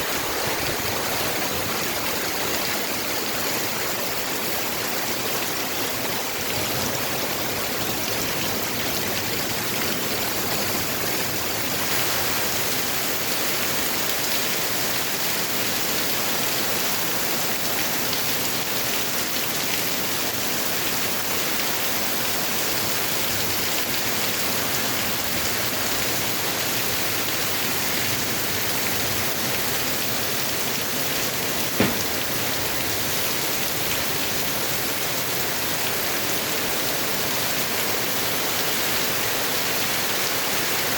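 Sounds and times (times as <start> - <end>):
heavy rain pouring: 0.0 - 40.9
sharp knock: 31.8 - 32.4.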